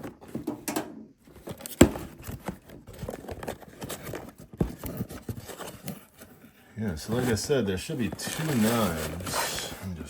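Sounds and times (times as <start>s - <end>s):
cardboard box being opened: 1.2s - 10.0s
packaging crinkling and tearing: 6.9s - 10.0s.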